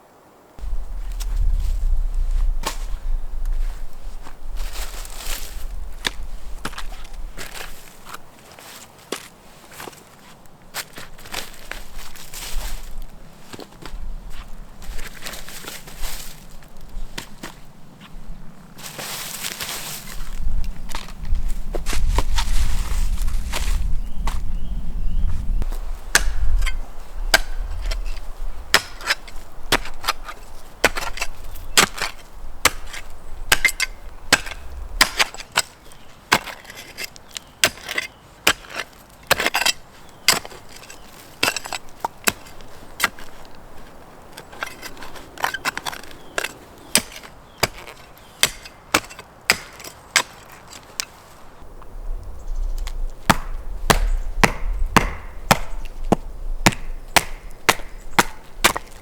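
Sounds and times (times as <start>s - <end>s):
low rumble: 0.6s - 7.4s
wood being chopped: 26.0s - 43.3s, 45.4s - 50.8s, 53.2s - 59.0s.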